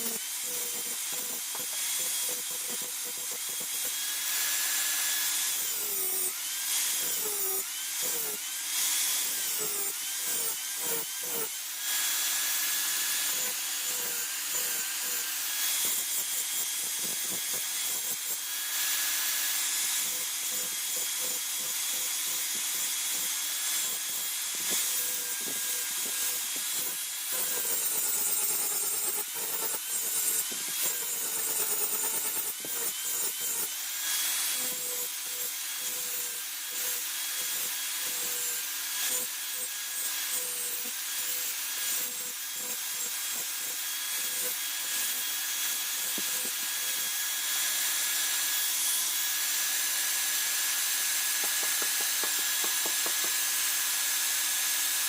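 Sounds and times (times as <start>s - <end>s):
grinder grinding steel blade: 0.0s - 55.0s.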